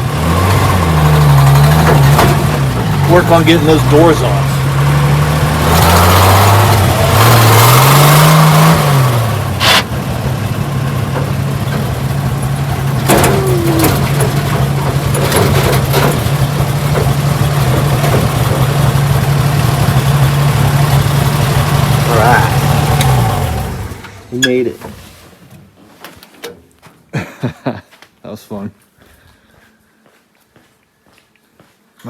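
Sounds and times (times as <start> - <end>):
car engine revving: 0.0 - 24.5.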